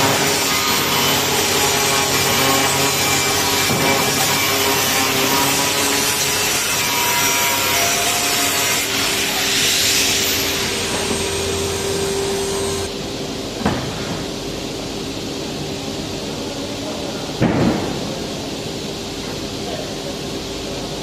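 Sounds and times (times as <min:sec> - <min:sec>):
power tool rasping metal: 0:00.0 - 0:12.9.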